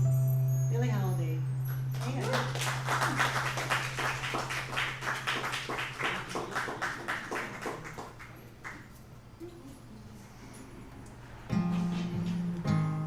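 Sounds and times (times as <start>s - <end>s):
audience clapping: 2.0s - 9.0s.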